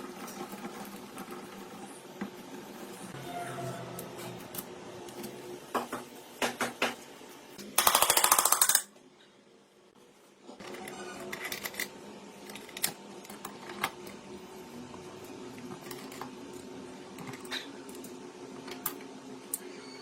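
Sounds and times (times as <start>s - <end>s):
hand tools clicking and tapping: 7.6s - 8.9s.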